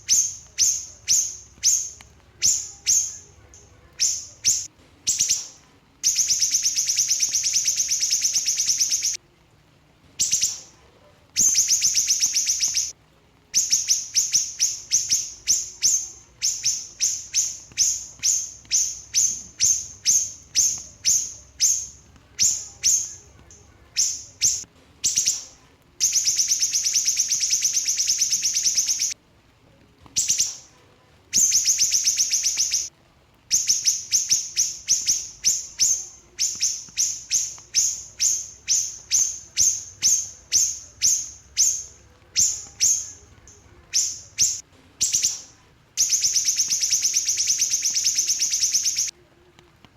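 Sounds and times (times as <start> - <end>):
songbird singing trills: 0.0 - 9.2, 10.2 - 29.2, 30.2 - 32.9, 33.5 - 49.1.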